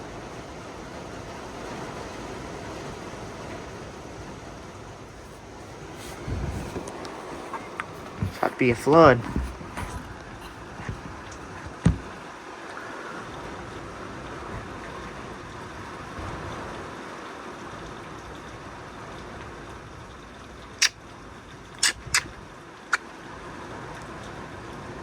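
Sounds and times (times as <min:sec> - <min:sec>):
heavy rain falling: 0:00.0 - 0:21.7
thump: 0:11.6 - 0:12.1.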